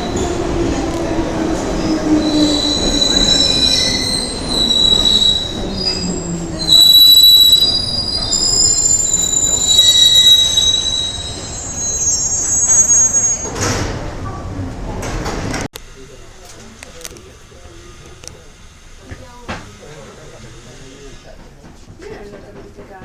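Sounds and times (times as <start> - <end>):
train wheels squealing on rails: 1.8 - 13.7.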